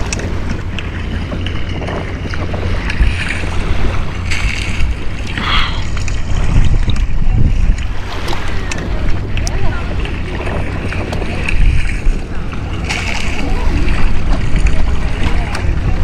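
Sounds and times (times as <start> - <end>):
sea water washing: 0.0 - 16.0
wind buffeting microphone: 0.0 - 16.0.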